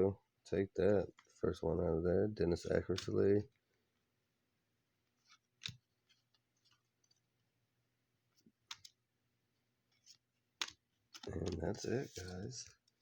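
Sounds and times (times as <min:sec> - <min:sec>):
trading cards clicking and tapping: 0:02.9 - 0:03.2, 0:10.6 - 0:12.8.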